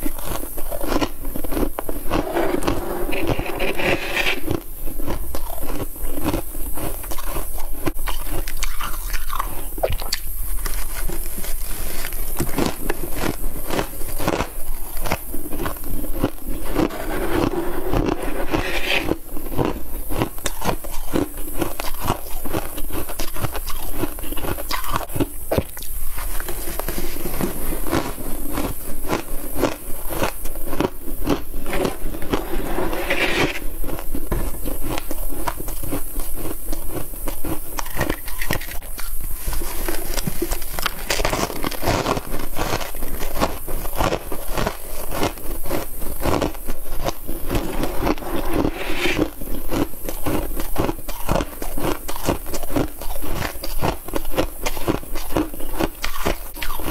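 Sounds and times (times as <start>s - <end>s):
crunching of bitten frost: 34.8s - 48.2s, 49.7s - 56.9s.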